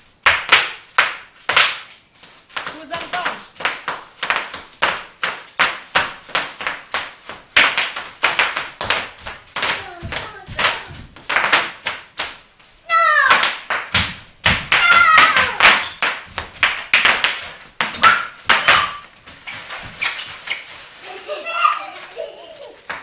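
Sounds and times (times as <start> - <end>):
high voice crying out: 14.8 - 15.6.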